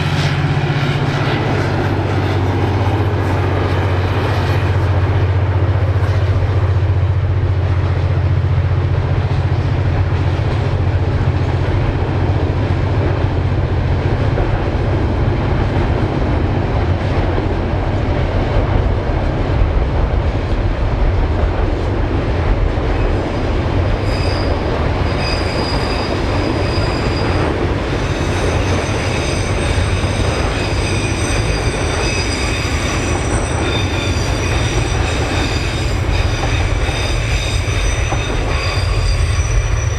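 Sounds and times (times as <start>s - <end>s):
diesel train low drone: 0.0s - 39.9s
high-pitched wheel squeal: 24.0s - 39.9s.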